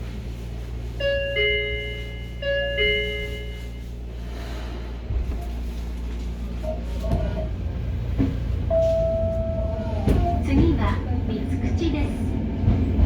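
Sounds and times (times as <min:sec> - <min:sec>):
train running rumble: 0:00.0 - 0:13.0
knocks in train: 0:10.0 - 0:11.0.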